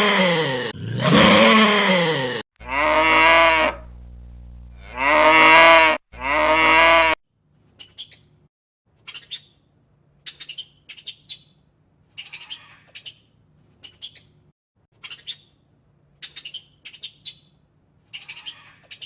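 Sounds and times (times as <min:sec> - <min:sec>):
faint low hum: 0:03.8 - 0:05.0
bird chirping in rapid bursts: 0:07.8 - 0:08.3, 0:09.0 - 0:09.6, 0:10.2 - 0:11.6, 0:12.2 - 0:14.4, 0:15.0 - 0:15.6, 0:16.2 - 0:19.0.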